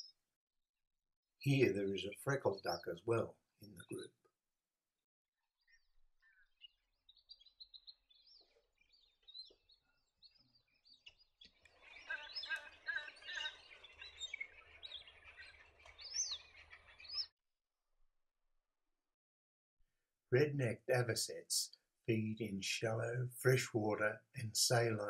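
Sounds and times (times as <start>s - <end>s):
ducks whistling calls: 11.7s - 17.3s.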